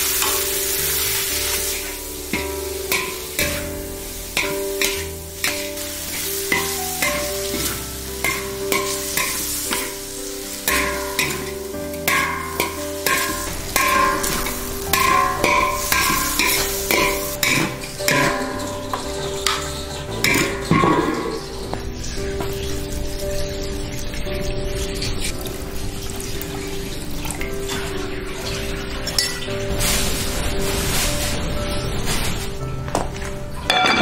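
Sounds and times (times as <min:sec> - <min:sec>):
metal spatula scraping wok: 0:00.0 - 0:32.6
food sizzling: 0:00.0 - 0:34.0.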